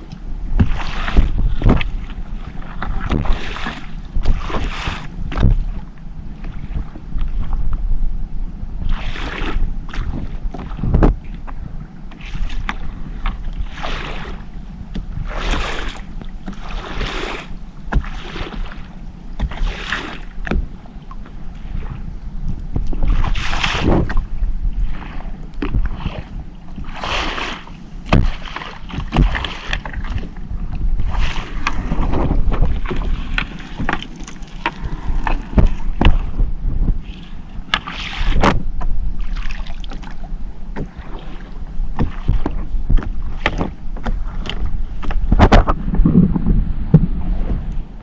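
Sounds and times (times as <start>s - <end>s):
strong wind: 0.0s - 17.2s, 20.4s - 48.0s
water splashing against hull: 0.0s - 48.0s
low rumble: 20.5s - 27.0s, 27.7s - 48.0s
knocks and clatters on board: 28.1s - 30.3s, 31.6s - 37.0s, 42.0s - 47.2s.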